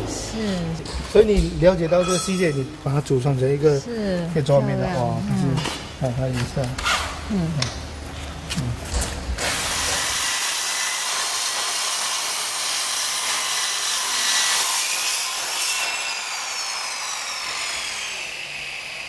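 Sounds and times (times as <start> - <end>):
circular saw cutting wood: 9.4 - 19.0.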